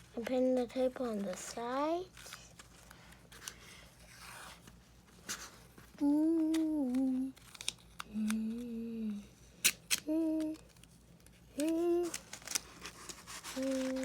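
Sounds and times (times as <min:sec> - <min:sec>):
child humming: 0:06.0 - 0:07.4, 0:08.1 - 0:09.4, 0:10.0 - 0:10.6, 0:11.6 - 0:12.2, 0:13.5 - 0:14.0
scratchy clicks and rips: 0:10.7 - 0:14.0.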